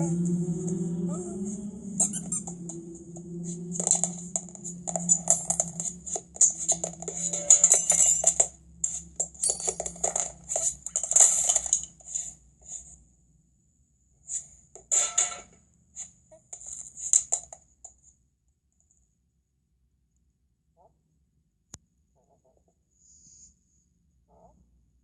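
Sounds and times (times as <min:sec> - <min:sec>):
cartoon clattering rattling noises: 0:03.8 - 0:12.4.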